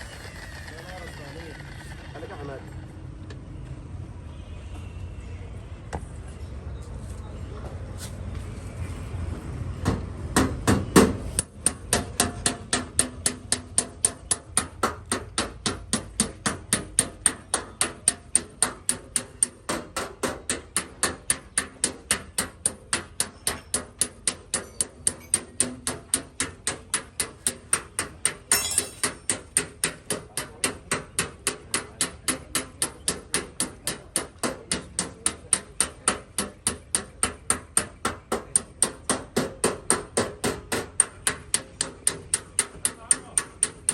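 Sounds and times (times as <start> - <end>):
hammer tapping on sheet metal: 9.8 - 43.9.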